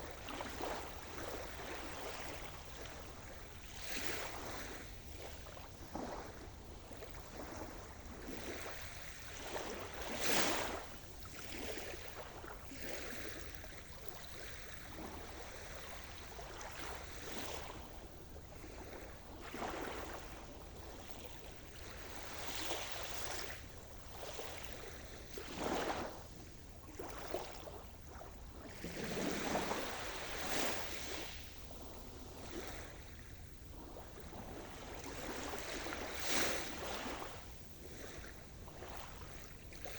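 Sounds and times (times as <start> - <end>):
sea waves breaking: 15.0 - 39.9.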